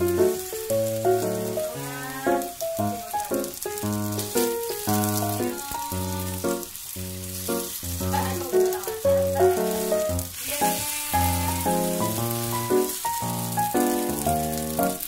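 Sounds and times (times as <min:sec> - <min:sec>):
food sizzling in oil: 0:00.0 - 0:15.0
background music: 0:07.4 - 0:15.0.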